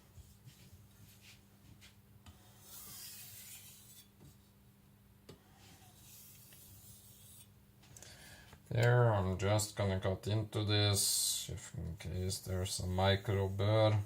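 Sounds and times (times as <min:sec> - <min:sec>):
knife blade scraping on whetstone: 0:02.6 - 0:04.1, 0:05.8 - 0:07.5.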